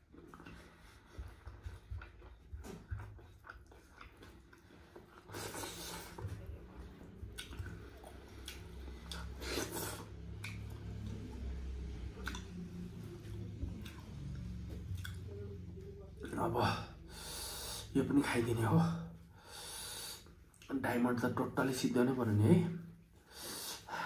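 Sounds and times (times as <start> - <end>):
person chewing: 0.0 - 15.4, 20.0 - 20.7.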